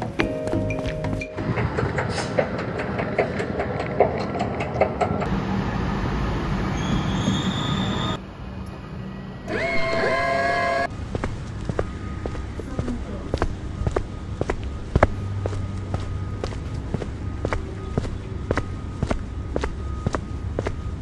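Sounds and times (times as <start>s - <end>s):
faint high squeal: 6.6s - 10.9s.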